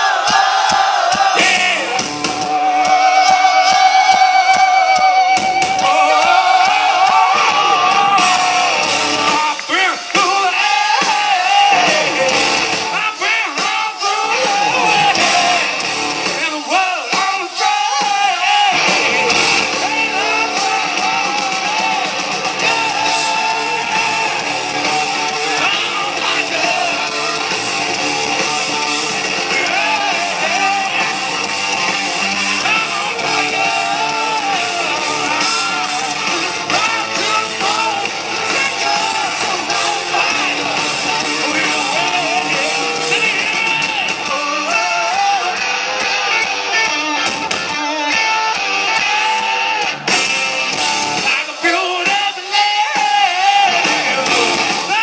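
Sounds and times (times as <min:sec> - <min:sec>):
bass and drums: 0:00.0 - 0:55.0
person singing: 0:01.4 - 0:27.7, 0:32.1 - 0:49.8, 0:51.2 - 0:55.0
electric guitar: 0:01.4 - 0:55.0.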